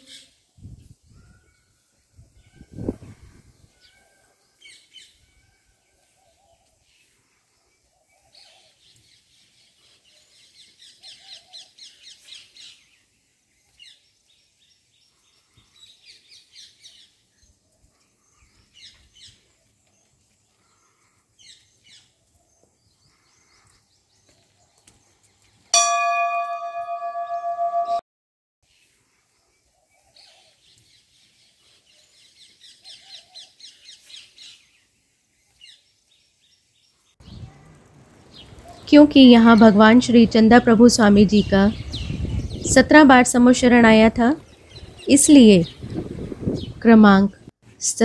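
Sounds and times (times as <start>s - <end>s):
small birds chirping: 0.0s - 28.0s, 28.7s - 47.2s
loud ringing tone: 25.8s - 28.0s.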